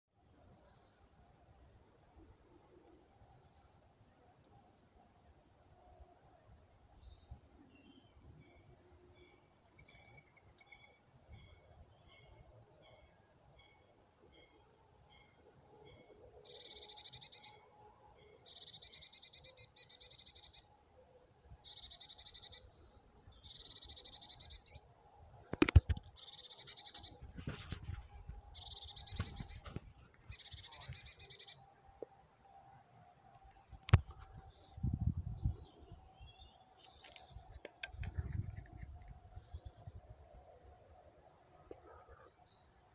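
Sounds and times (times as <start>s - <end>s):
songbird trilling: 16.4s - 17.6s, 18.4s - 20.7s, 21.6s - 22.7s, 23.4s - 24.9s, 28.6s - 31.6s.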